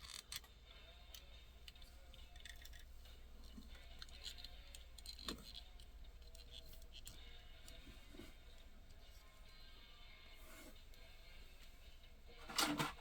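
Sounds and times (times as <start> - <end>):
model car clicks and ticks: 0.0 - 0.5, 1.2 - 2.9, 3.7 - 7.2.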